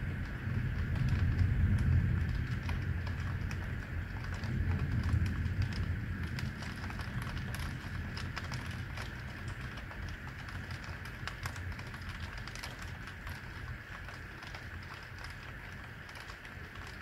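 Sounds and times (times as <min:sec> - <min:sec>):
low rumble: 0:00.0 - 0:09.3
raindrops pattering on a surface: 0:00.0 - 0:17.0
steady rain hiss: 0:00.0 - 0:17.0.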